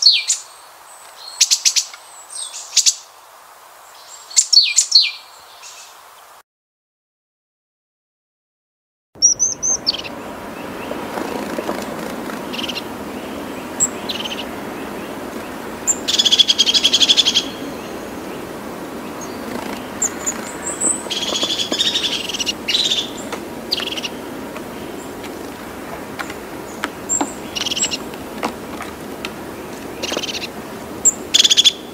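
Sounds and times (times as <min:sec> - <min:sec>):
birds chirping: 0:00.0 - 0:03.1, 0:09.2 - 0:31.9
birds chattering calls: 0:09.2 - 0:31.9
background hiss: 0:09.6 - 0:31.9.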